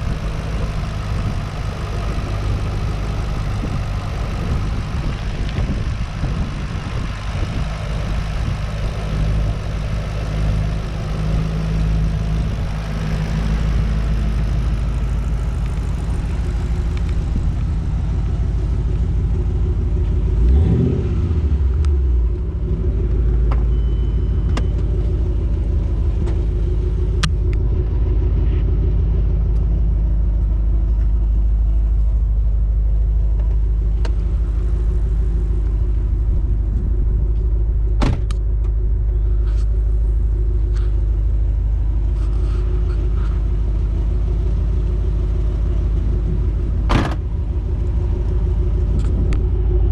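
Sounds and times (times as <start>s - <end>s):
car engine idling: 0.0s - 49.9s
engine throttle blip: 23.2s - 25.2s.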